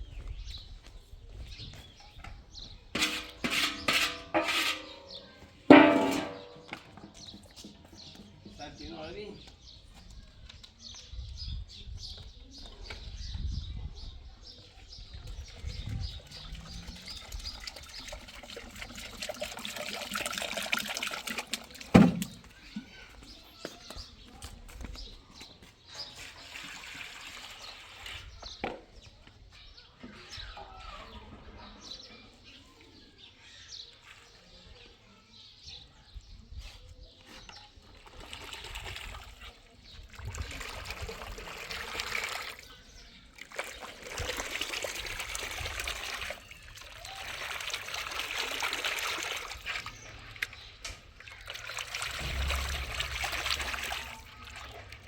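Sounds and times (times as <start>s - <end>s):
water trickling and splashing: 15.0s - 23.4s, 26.0s - 28.4s, 37.8s - 55.0s.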